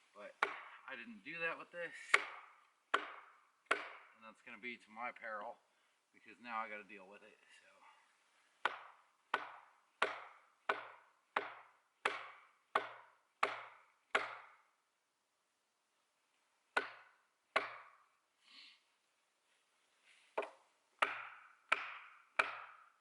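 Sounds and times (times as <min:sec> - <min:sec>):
axe chopping into log: 0:02.1 - 0:04.1, 0:08.6 - 0:14.5, 0:16.8 - 0:18.0, 0:20.4 - 0:22.8.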